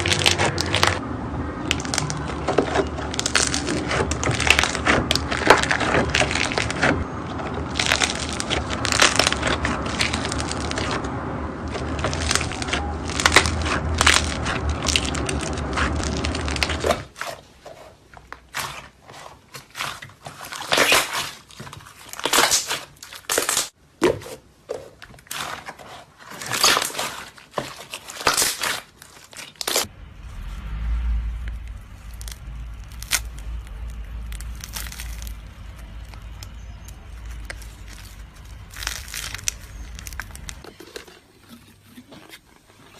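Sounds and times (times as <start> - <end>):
slime crackling by hand: 0.0 - 1.0, 1.6 - 17.6, 31.3 - 40.7
low hum: 0.0 - 16.9, 29.9 - 40.7.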